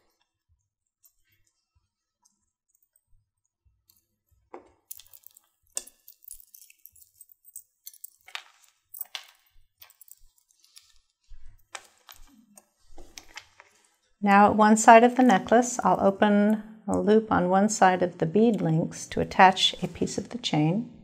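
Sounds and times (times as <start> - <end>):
small metal clicks and clinks: 4.9 - 11.0.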